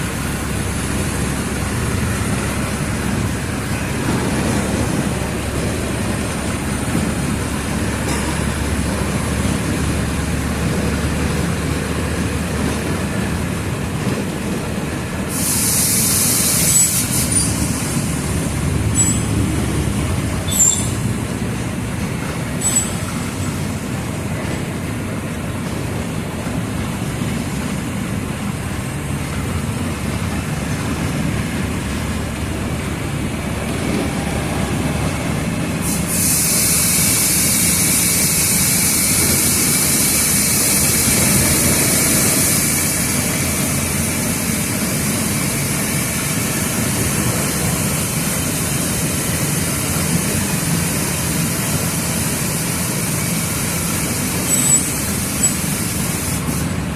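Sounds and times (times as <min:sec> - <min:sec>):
bus diesel engine rumbling: 0:00.0 - 0:56.9
loud air hiss: 0:15.0 - 0:24.3, 0:35.6 - 0:56.9.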